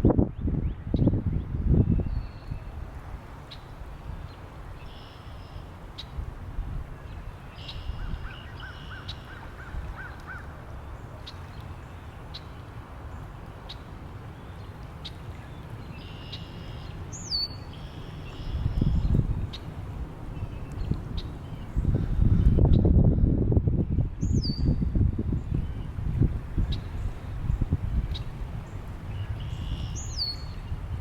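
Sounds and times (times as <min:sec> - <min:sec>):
wind rumbling on microphone: 0:00.0 - 0:31.0
wild birds calling: 0:07.6 - 0:10.6.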